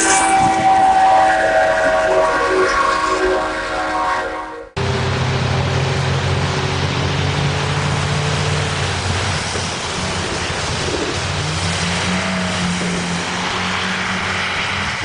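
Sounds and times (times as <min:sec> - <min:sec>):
wind on microphone: 0:00.0 - 0:03.8, 0:08.7 - 0:15.0
vehicle rushing noise: 0:00.0 - 0:15.0.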